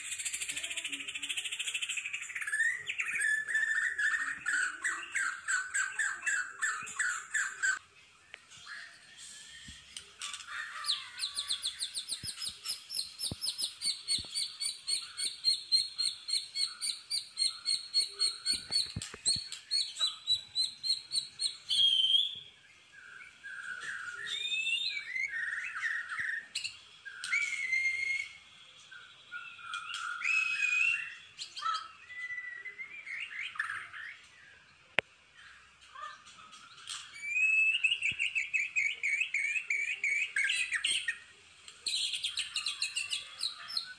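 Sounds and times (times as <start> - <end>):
songbird singing fast trills: 8.6 - 34.6, 36.8 - 43.9.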